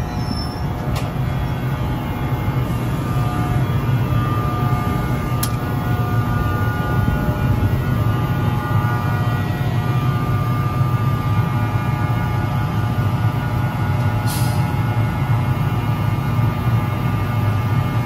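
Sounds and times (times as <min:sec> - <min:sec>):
faint whining tones: 0:00.0 - 0:14.2
low engine drone: 0:00.0 - 0:18.0.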